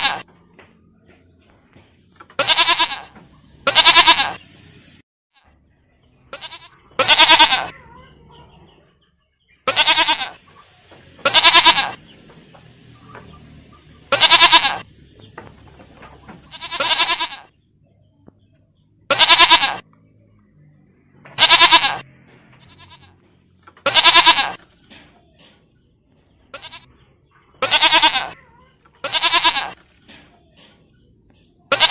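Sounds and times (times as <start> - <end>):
goats bleating: 0.0 - 0.3, 2.4 - 4.4, 6.3 - 7.8, 9.6 - 10.4, 11.2 - 12.1, 14.1 - 14.9, 16.4 - 17.5, 19.1 - 19.8, 21.4 - 23.2, 23.8 - 24.6, 26.5 - 26.9, 27.6 - 28.4, 29.0 - 29.8, 31.7 - 31.9.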